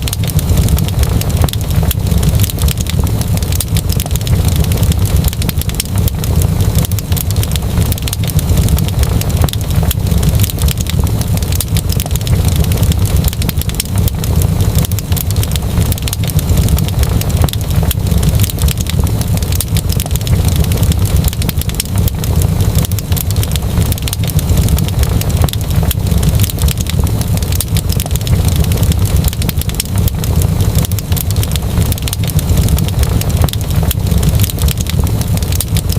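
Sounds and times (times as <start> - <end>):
wood fire crackling in fireplace: 0.0 - 35.9.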